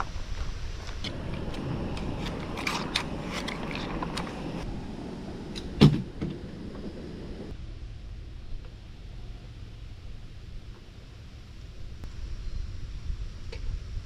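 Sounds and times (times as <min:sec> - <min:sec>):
gear clicking and creaking: 0:00.0 - 0:04.7.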